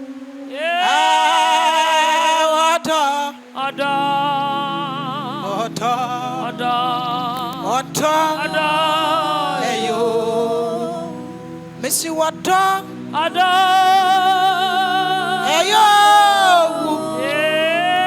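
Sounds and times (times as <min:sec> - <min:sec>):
person singing with vibrato: 0:00.4 - 0:18.0
sustained keyboard chords: 0:03.7 - 0:18.0.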